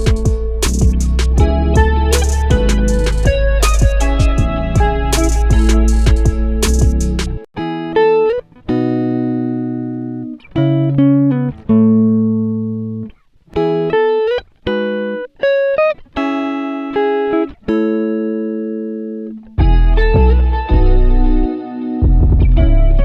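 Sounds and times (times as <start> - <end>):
plucked guitar notes: 0.0 - 23.0.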